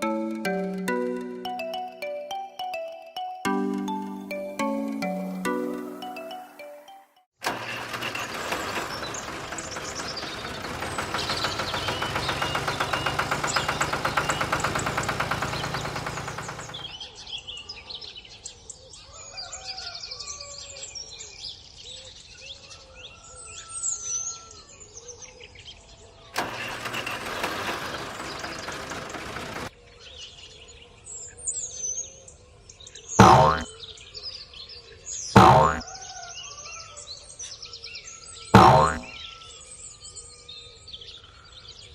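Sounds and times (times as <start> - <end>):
engine running: 7.4 - 16.9, 26.4 - 29.7, 33.2 - 33.7, 35.4 - 35.8, 38.6 - 39.1.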